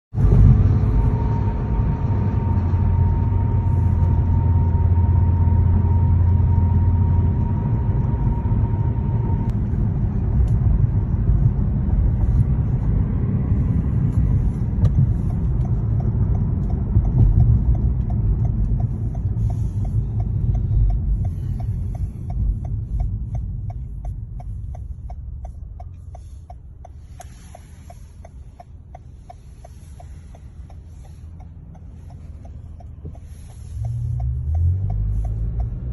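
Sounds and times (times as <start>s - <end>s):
low traffic rumble: 0.1s - 35.9s
fast even ticking: 14.8s - 35.9s.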